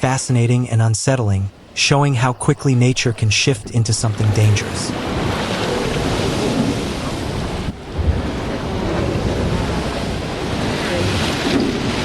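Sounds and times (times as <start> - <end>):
ocean surf rushing: 1.4 - 12.0
wind buffeting microphone: 1.5 - 12.0.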